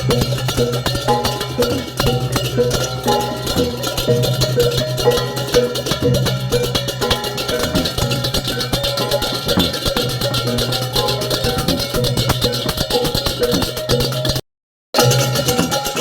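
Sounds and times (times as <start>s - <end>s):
gamelan playing: 0.0s - 14.4s, 15.0s - 16.0s.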